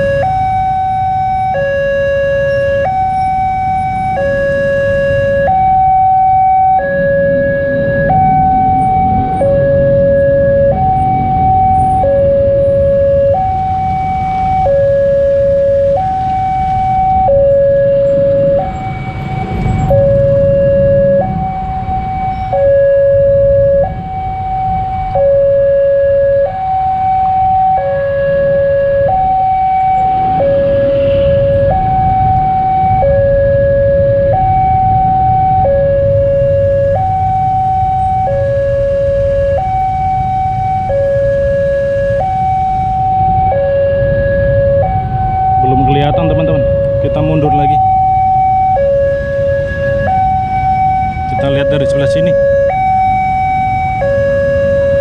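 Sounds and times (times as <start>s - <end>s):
level crossing two-tone alarm: 0.0s - 55.0s
road traffic rumble: 0.0s - 55.0s.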